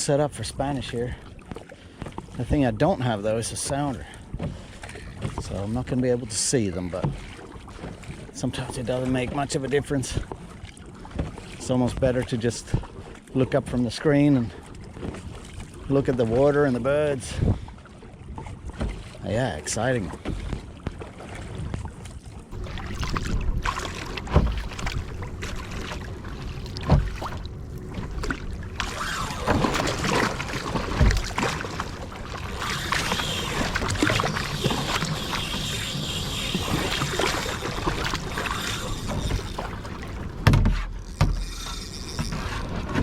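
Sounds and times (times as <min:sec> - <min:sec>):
water sloshing around kayak: 0:00.0 - 0:43.0
dull knocks against hull: 0:22.6 - 0:32.0, 0:37.8 - 0:43.0.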